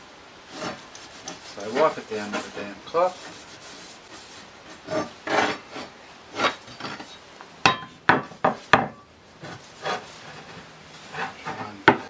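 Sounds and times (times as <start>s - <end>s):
cloth rubbing on metal blade: 0.5s - 6.6s, 9.4s - 11.8s
sharp metallic knocks: 7.6s - 9.0s.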